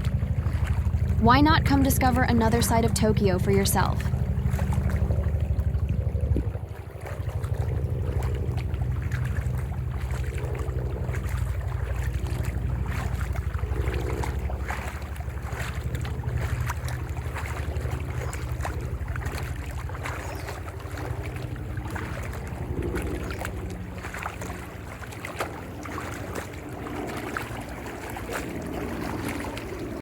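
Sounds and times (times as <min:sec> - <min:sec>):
wind buffeting microphone: 0:03.8 - 0:25.0.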